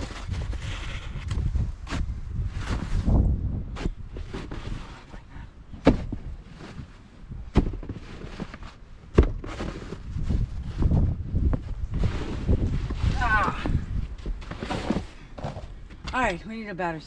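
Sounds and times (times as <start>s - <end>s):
snow shovel scraping and crunching: 9.4s - 10.3s, 12.0s - 13.2s, 14.4s - 15.3s.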